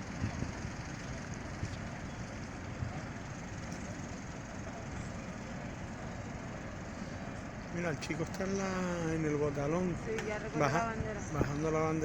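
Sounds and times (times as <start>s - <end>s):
wind buffeting microphone: 0.0s - 3.3s, 10.9s - 12.0s.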